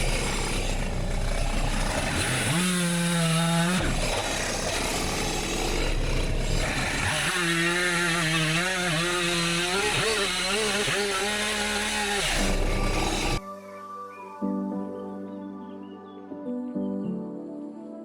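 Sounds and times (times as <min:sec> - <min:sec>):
chainsaw cutting wood: 0:00.0 - 0:13.4.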